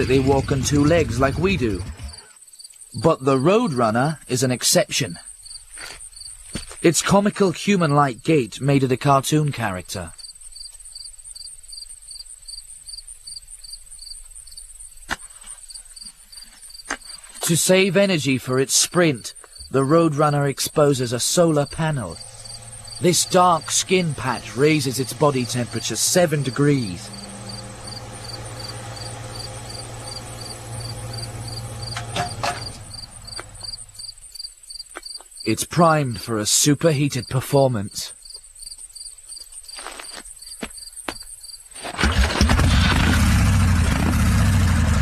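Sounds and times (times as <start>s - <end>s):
high-pitched insect trill: 5.2s - 6.6s, 10.1s - 17.4s, 19.5s - 32.0s, 32.6s - 35.5s, 38.2s - 41.7s
low steady hum: 19.7s - 34.2s.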